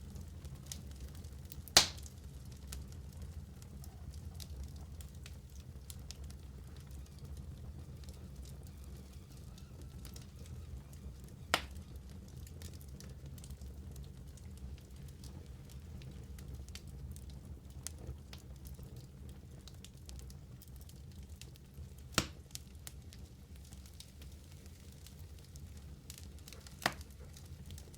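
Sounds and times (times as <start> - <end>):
wood fire crackling: 0.0 - 27.9
sharp loud pops of fire: 1.7 - 2.2, 11.5 - 11.8, 22.2 - 22.4.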